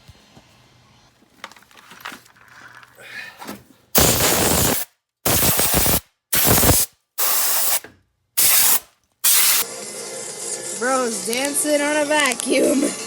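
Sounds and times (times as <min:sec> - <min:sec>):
bursts of hissing air: 0:04.0 - 0:07.8, 0:08.4 - 0:09.6.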